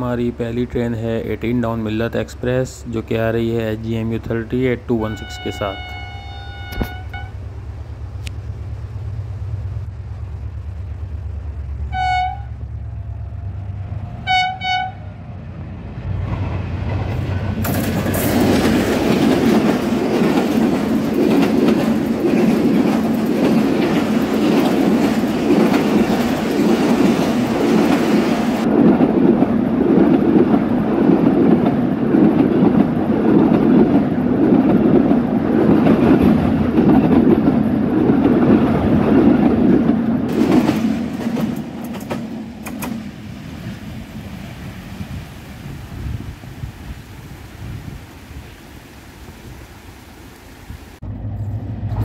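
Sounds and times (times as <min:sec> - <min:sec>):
passenger train rumbling past: 0:00.0 - 0:52.0
locomotive horn blasts: 0:05.0 - 0:07.4, 0:11.9 - 0:12.7, 0:14.2 - 0:15.2
wheels clattering over rail joints: 0:16.2 - 0:43.3.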